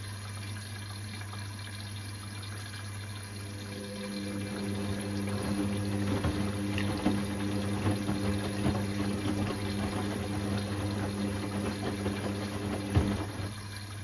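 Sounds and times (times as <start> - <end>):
washing machine humming: 0.0 - 14.0
water splashing in drum: 3.1 - 14.0.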